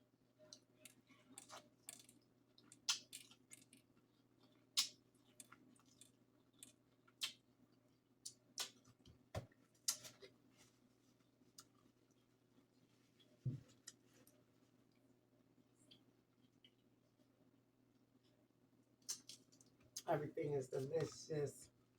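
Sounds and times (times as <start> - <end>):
chewing and mouth noises: 0.4 - 9.0, 15.8 - 17.0, 19.0 - 20.0.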